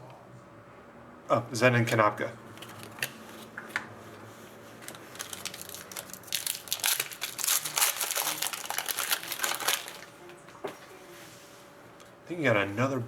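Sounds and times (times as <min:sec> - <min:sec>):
plastic wrapper crinkling: 0:02.6 - 0:03.5, 0:04.8 - 0:10.2.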